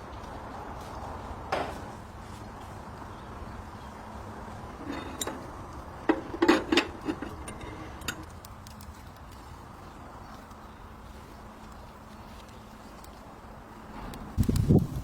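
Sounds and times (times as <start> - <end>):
low background noise: 0.0 - 15.0
clinks and knocks: 4.8 - 8.3.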